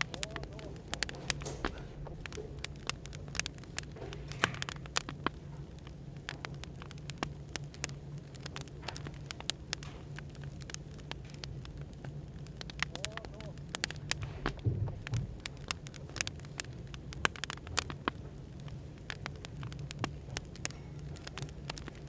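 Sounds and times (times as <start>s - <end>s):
cafe background hum: 0.0s - 22.0s
wood fire crackling and popping: 0.0s - 22.0s.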